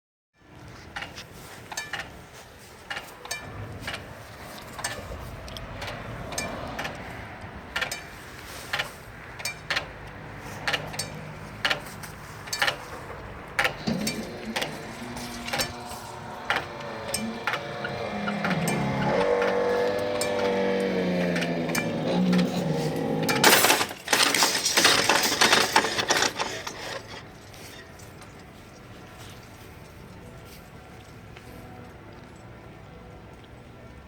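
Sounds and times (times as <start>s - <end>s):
low engine hum: 3.4s - 23.6s
level crossing warning bell: 10.7s - 25.3s.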